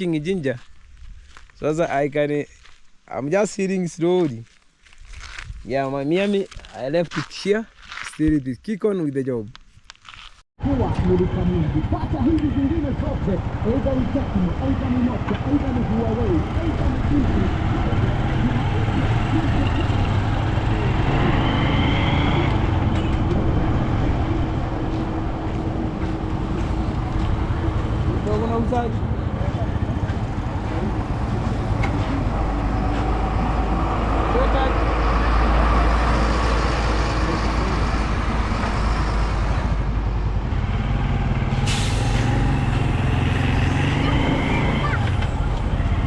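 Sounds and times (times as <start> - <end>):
road traffic rumble: 10.1 - 46.0
short hiss: 41.7 - 42.4.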